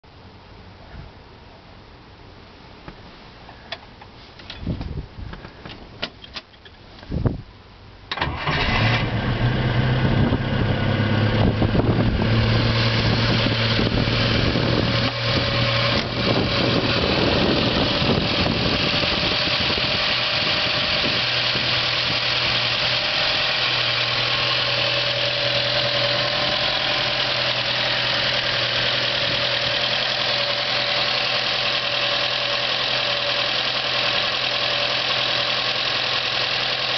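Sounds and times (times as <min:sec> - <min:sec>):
car engine starting and idling: 0:08.0 - 0:36.9.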